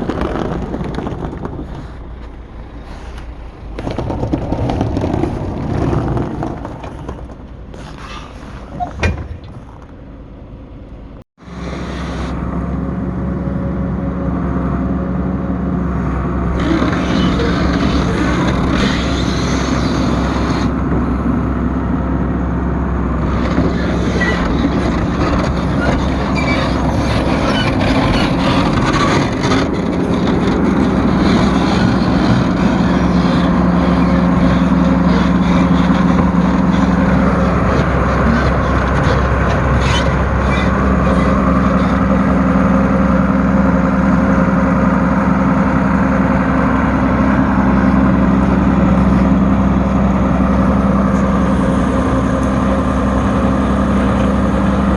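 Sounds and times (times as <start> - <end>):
clanks and rattles: 0.0 - 10.2
large diesel engine running: 0.0 - 54.9.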